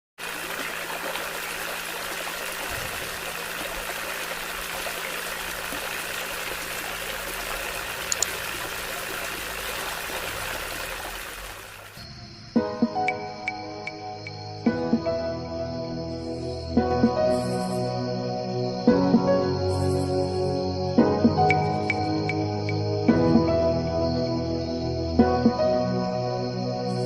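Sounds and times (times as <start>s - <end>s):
water running in a stream: 0.2s - 12.1s
soft music: 12.0s - 27.0s.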